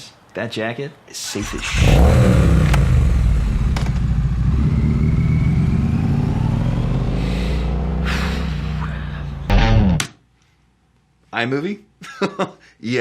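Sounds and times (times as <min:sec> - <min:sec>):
motorcycle engine running: 0:01.4 - 0:09.8.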